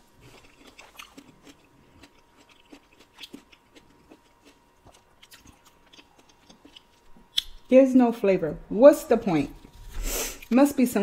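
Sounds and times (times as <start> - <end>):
wet chewing sounds: 0.0 - 7.6.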